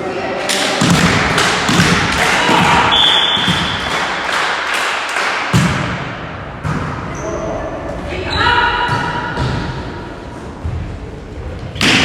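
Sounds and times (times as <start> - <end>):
loud crowd din: 0.0 - 12.0
volleyball knocks and thuds: 0.8 - 3.8, 5.6 - 7.0, 8.8 - 9.8
short whistle: 2.9 - 3.6.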